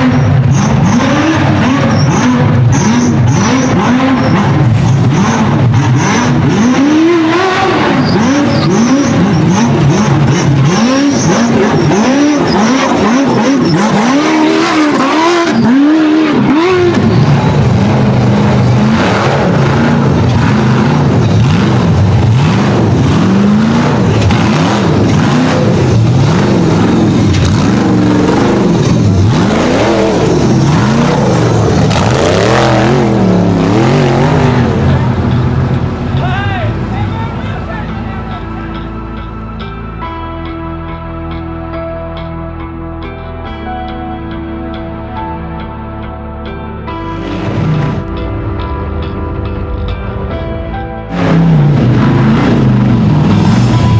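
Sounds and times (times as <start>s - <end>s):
race vehicle engine revving: 0.0s - 38.9s, 46.9s - 48.3s, 51.0s - 53.9s.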